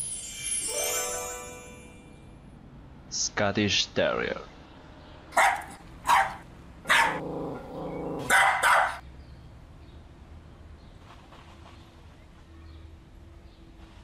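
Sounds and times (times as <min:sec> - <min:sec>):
dog barking: 0:05.4 - 0:09.0.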